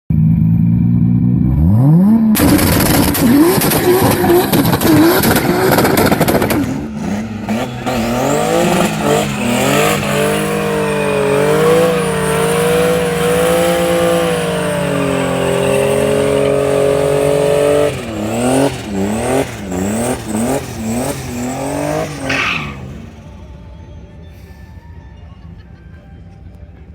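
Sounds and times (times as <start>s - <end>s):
car engine revving: 0.1s - 23.6s
tire squeal: 2.4s - 23.5s.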